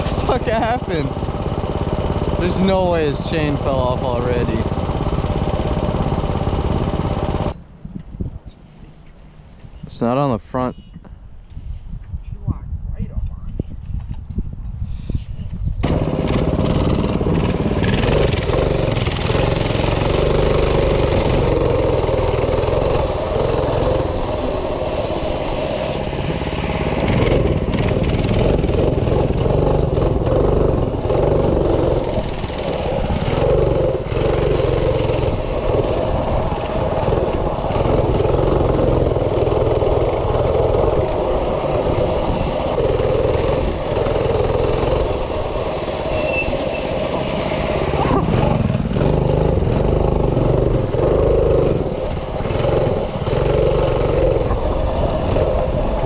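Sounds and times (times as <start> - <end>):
small minibike engine running: 0.0 - 7.6, 15.8 - 56.0.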